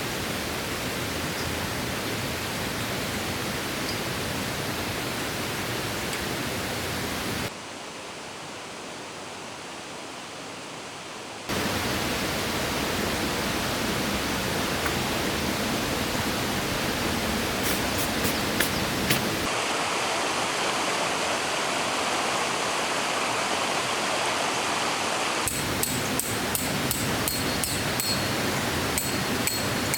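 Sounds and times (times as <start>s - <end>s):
mountain stream rushing: 11.5s - 29.9s.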